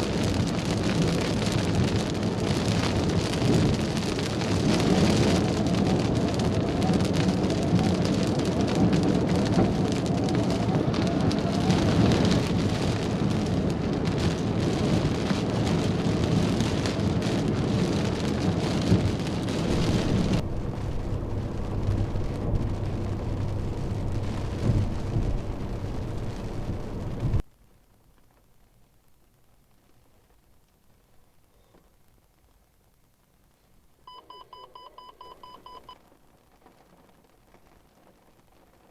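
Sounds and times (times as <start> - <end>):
thunder rumble: 0.0 - 27.4
heavy rain hissing and pattering: 0.0 - 34.6, 35.2 - 38.9
wind: 0.0 - 38.9.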